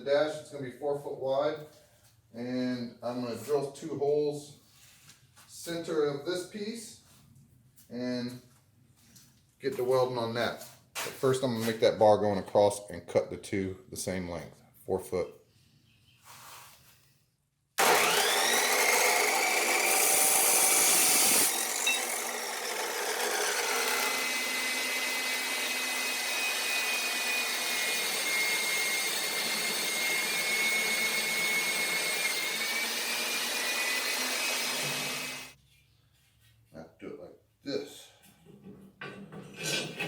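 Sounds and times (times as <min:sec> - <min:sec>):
power tool cutting metal: 0:17.8 - 0:35.6.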